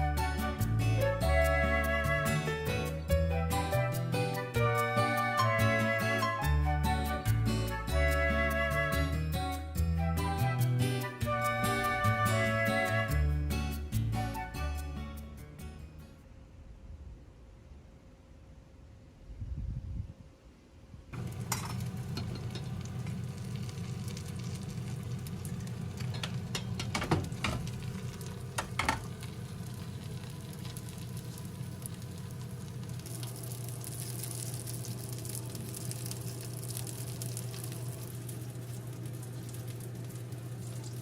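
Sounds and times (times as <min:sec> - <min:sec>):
food sizzling in a pan: 0:21.2 - 0:41.0
low hum: 0:21.2 - 0:41.0.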